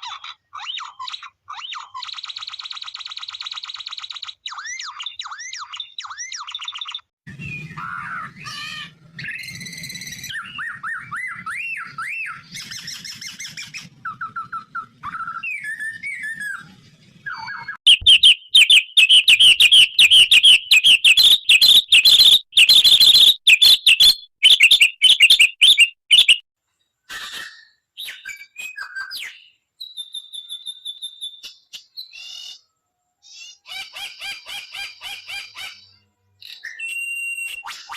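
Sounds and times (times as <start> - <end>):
rapid shrill bird chirps: 0.0 - 13.7, 17.3 - 26.5
bird calls and songs: 0.0 - 37.9.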